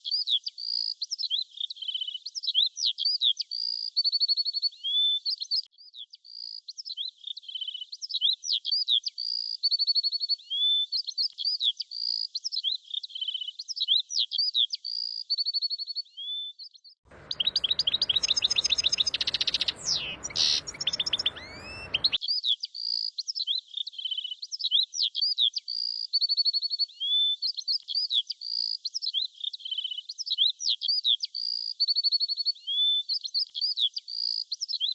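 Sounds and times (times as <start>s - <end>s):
songbirds chirping and whistling: 17.1s - 22.2s.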